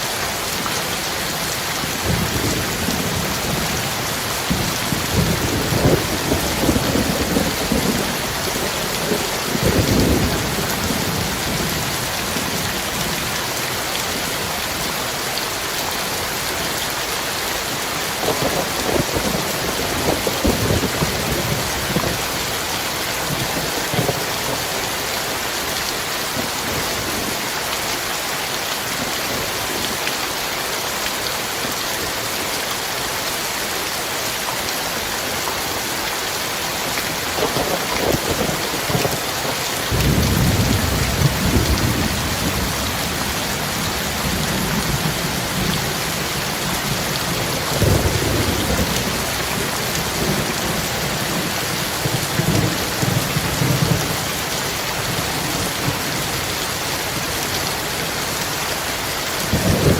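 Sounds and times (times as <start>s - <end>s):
heavy rain: 0.0s - 59.9s
thunder rolling: 4.5s - 11.9s, 18.2s - 22.5s, 37.4s - 54.1s.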